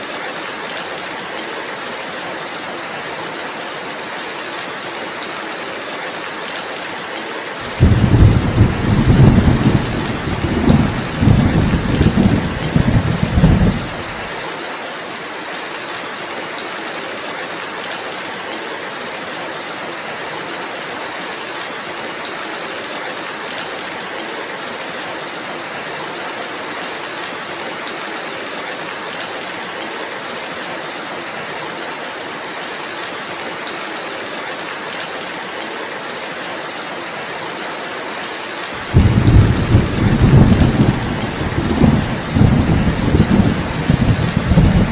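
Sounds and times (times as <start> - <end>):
rainfall hiss: 0.0 - 44.9
low thunder rumble: 7.7 - 14.2, 38.8 - 44.9.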